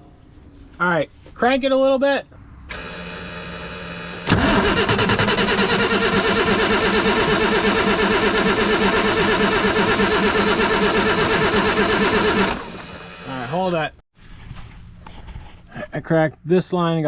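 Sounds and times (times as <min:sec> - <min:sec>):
starter cranking engine: 0:02.7 - 0:13.8.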